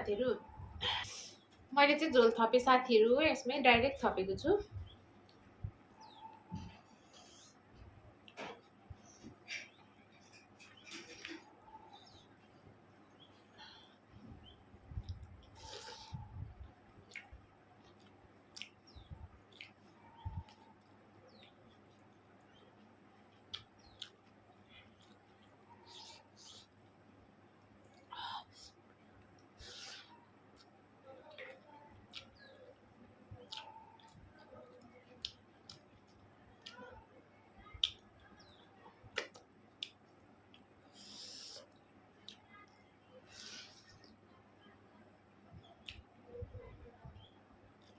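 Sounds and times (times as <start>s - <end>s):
soft chewing: 4.6s - 47.9s
soft mouth clicks and smacks: 14.9s - 26.9s, 31.4s - 32.5s, 33.4s - 36.8s, 37.7s - 38.3s, 39.1s - 44.2s, 45.6s - 46.1s
person chewing food: 15.0s - 26.9s, 31.4s - 32.8s, 33.4s - 36.8s.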